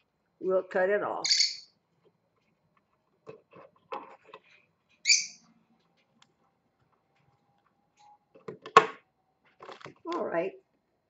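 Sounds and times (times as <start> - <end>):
parrot squawk: 1.2 - 1.7.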